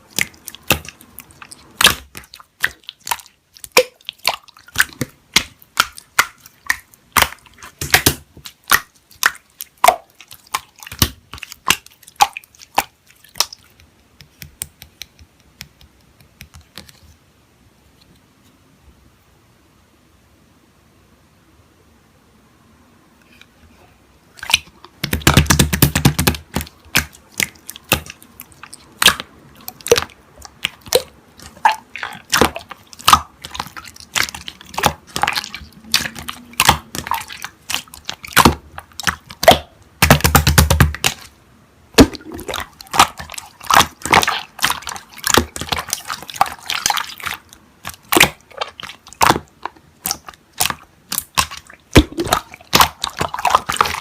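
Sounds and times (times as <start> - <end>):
slime squelching: 0.0 - 17.2, 24.3 - 54.0
slime wet clicks and pops: 24.4 - 41.3.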